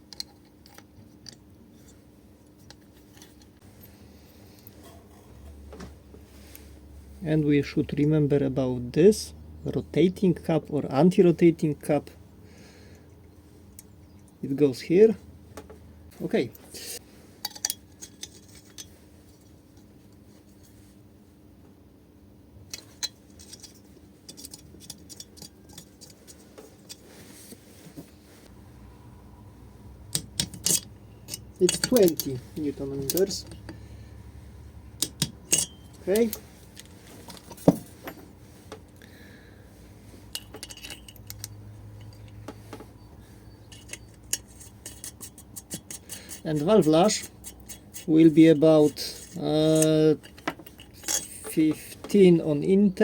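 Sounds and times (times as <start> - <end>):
metal parts and tools clinking: 17.4 - 18.9, 22.7 - 27.0, 30.1 - 33.8, 35.0 - 38.3, 40.2 - 52.3.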